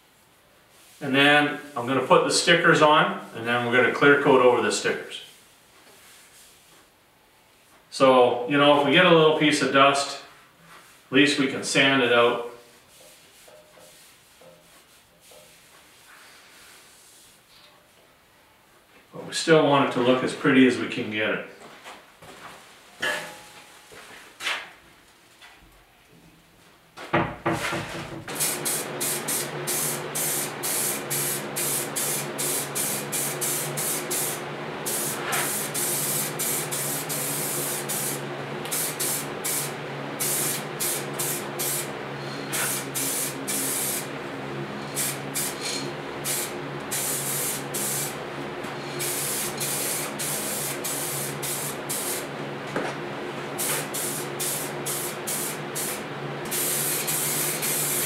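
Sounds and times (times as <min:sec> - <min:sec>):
spray can hissing in bursts: 0:28.3 - 0:41.9, 0:42.5 - 0:44.1, 0:44.9 - 0:48.2, 0:48.9 - 0:52.3, 0:53.6 - 0:58.0.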